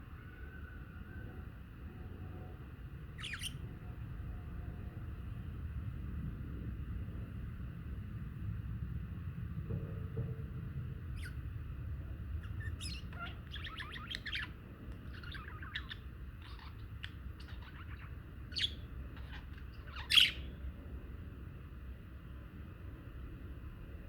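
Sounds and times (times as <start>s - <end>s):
budgerigars chirping and trilling: 3.2s - 3.6s, 12.4s - 20.5s
low rumble: 3.7s - 19.9s.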